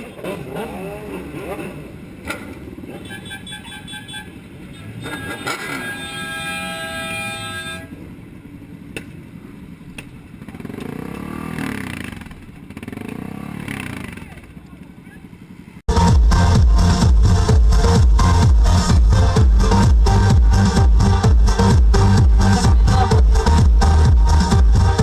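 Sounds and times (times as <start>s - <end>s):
road traffic noise: 0.0s - 25.0s
car horn honking: 2.9s - 8.0s.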